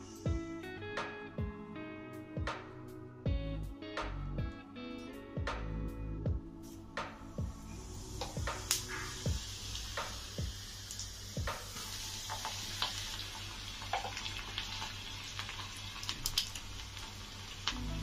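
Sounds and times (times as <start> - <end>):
food sizzling in hot oil: 7.6 - 18.0.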